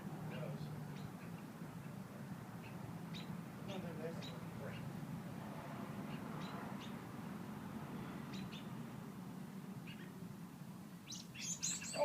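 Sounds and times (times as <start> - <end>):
small bird chirping: 2.6 - 3.4, 8.3 - 8.7, 11.0 - 12.0.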